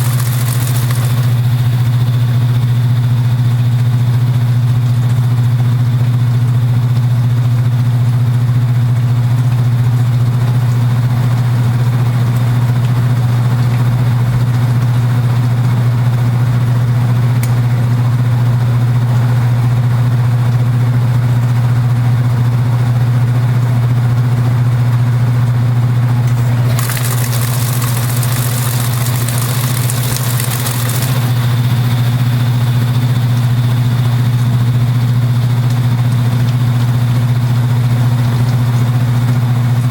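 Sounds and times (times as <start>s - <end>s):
washing machine buzzing hum: 0.0s - 12.8s, 23.2s - 39.9s.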